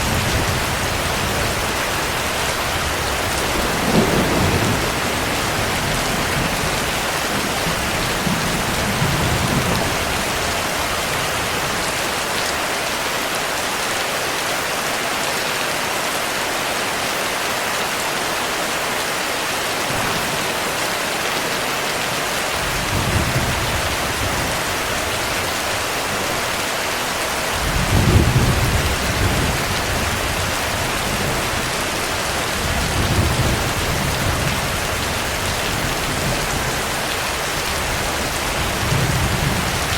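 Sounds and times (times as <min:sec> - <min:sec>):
low thunder rumbling: 0:00.0 - 0:11.8, 0:27.4 - 0:39.9
heavy rain falling: 0:00.0 - 0:39.9.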